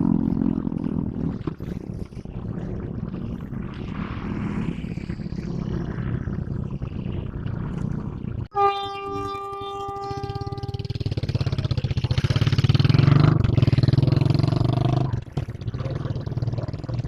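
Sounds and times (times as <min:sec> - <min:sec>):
locomotive horn: 0:08.5 - 0:11.2.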